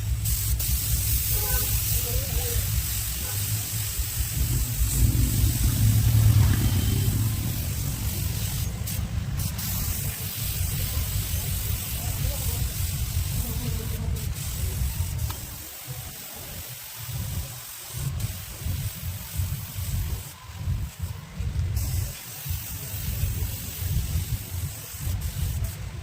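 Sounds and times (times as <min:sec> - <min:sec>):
spray gun hissing: 0:00.0 - 0:26.0
low rumble: 0:03.6 - 0:10.2.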